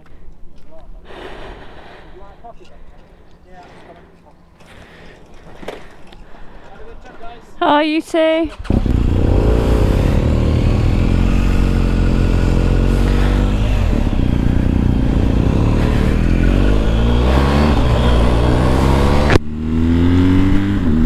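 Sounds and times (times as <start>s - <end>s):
motorcycle engine accelerating: 8.4s - 21.0s.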